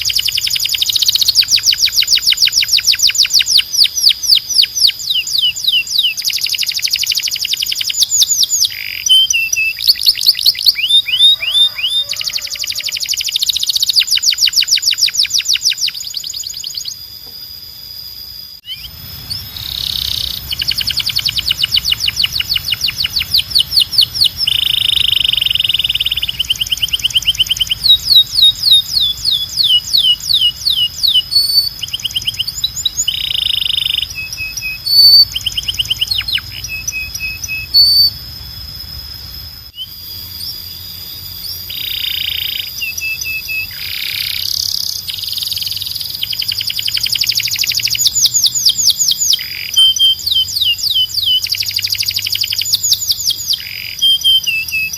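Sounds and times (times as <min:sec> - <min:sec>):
canary singing trills: 0:00.0 - 0:54.9
low hum: 0:17.0 - 0:33.0.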